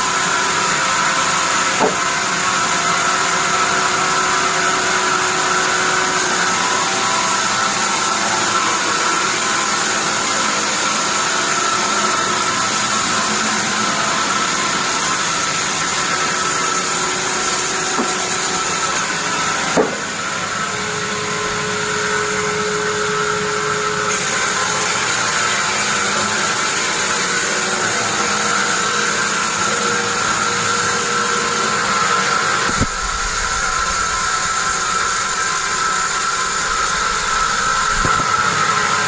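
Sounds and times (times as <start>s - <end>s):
bandsaw machinery running: 0.0s - 39.0s
short sharp knock: 19.8s - 20.0s.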